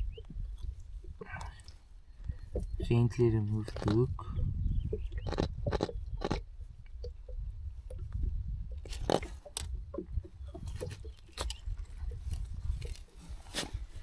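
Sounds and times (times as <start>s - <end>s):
clicks and crunchy handling: 0.2s - 4.2s, 5.2s - 6.4s, 8.8s - 14.0s.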